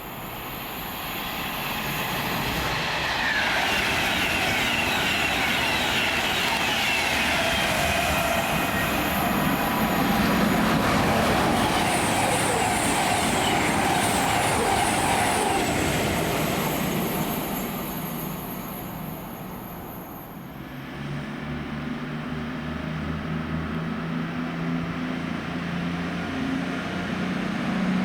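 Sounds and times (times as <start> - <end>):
train wheels rumbling on rails: 0.0 - 22.4.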